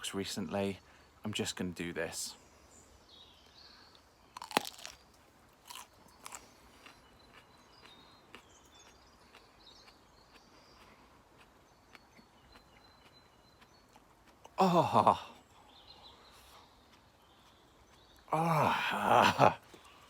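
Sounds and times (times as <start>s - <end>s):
crunchy bite into pepper: 4.3s - 10.4s
chewing crunches: 4.3s - 20.0s.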